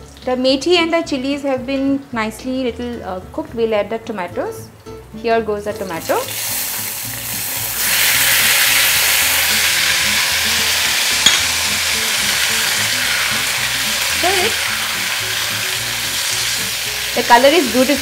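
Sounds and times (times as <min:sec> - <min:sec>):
tomatoes sizzling in hot oil: 0:05.6 - 0:18.0.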